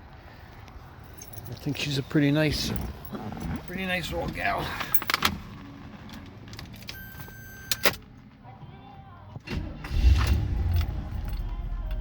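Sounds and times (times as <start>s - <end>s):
clicks and knocks of handling keys: 4.8s - 8.0s
car warning buzzer tone: 6.9s - 8.0s.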